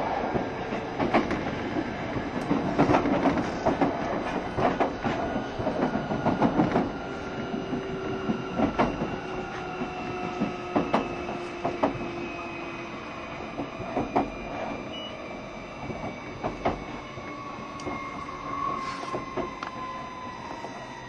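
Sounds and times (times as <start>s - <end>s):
train rumble: 0.0s - 21.0s
train wheels clicking over joints: 0.7s - 12.2s, 15.8s - 19.8s.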